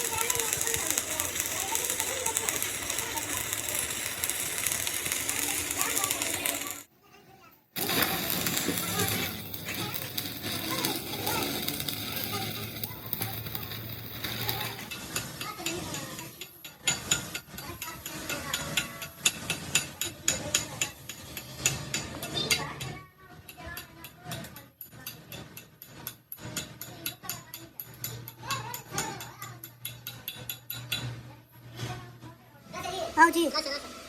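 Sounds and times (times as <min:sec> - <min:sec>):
ratchet tool clicking: 0:00.0 - 0:06.9.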